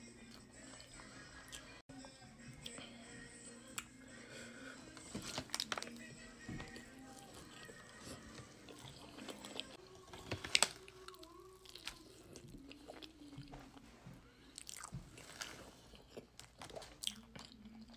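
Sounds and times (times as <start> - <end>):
biting and wet chewing: 5.0 - 6.0, 6.6 - 13.8, 14.5 - 17.9.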